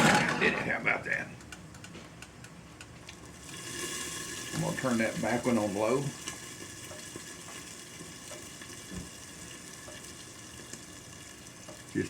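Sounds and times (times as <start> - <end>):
potatoes sizzling in a skillet: 3.4 - 12.0.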